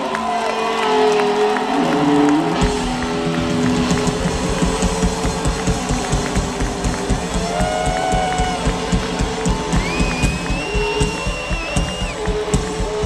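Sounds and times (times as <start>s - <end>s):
drums fast steady beat: 2.6s - 13.0s.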